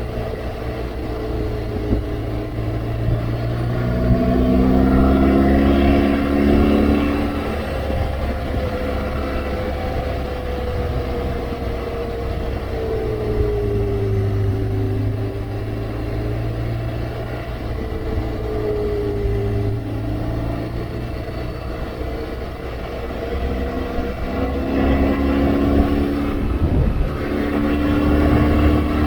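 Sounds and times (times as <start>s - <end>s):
low rushing noise: 0.0s - 29.0s
motorcycle engine running: 0.0s - 29.0s.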